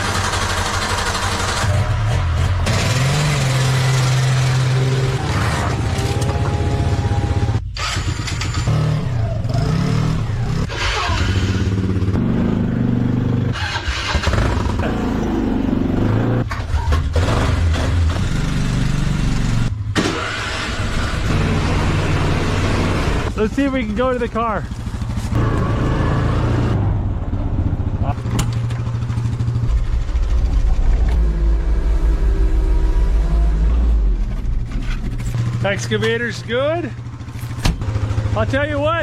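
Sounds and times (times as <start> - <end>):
off-road vehicle engines idling: 21.2 - 25.8, 27.3 - 39.0.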